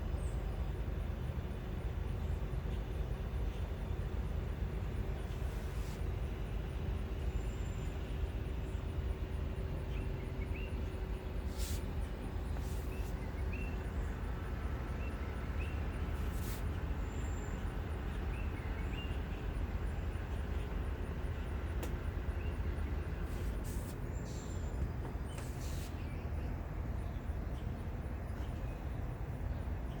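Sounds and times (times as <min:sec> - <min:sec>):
small birds chirping: 0:04.8 - 0:30.0.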